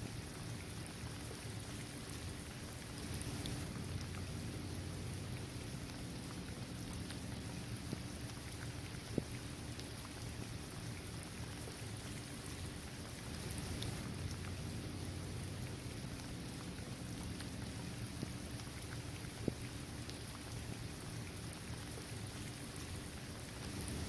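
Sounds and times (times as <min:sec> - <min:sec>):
steady rain falling: 0:00.0 - 0:24.0
single raindrops ticking: 0:02.9 - 0:04.3, 0:23.6 - 0:24.0.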